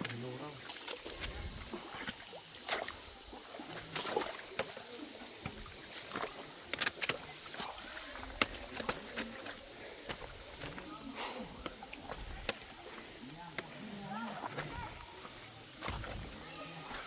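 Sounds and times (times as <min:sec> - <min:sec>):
footsteps on rocky trail: 0:06.0 - 0:13.8.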